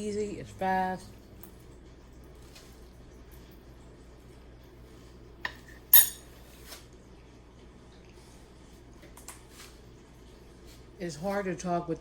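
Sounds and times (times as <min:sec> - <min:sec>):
fork clinking against plate: 0:05.5 - 0:06.3.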